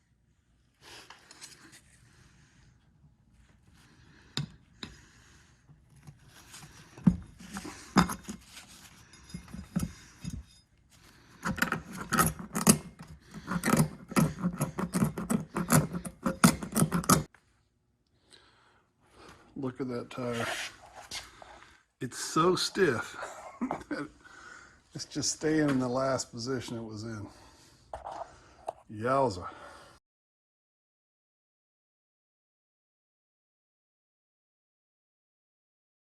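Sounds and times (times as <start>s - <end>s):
tools scraping and knocking on wheel rim: 6.0s - 10.7s, 11.3s - 17.3s.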